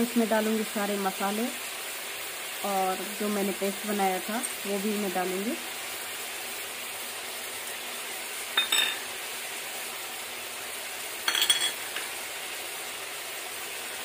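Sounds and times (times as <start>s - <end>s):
chicken sizzling in oil: 0.0s - 14.0s
metal clinking: 8.6s - 9.0s, 11.3s - 11.8s.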